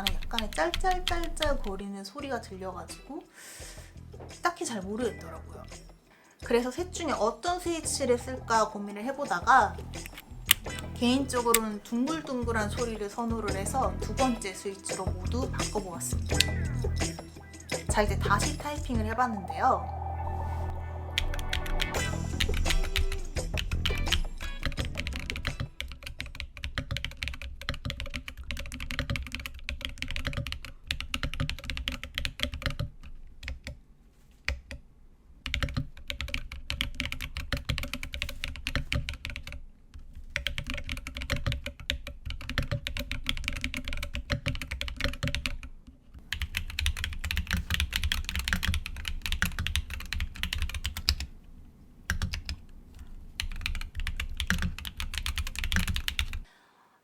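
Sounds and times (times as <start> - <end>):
mechanical keyboard typing: 0.0 - 1.8, 22.5 - 33.8, 35.4 - 39.6, 40.3 - 45.7, 46.3 - 51.3, 52.1 - 52.6, 53.4 - 56.4.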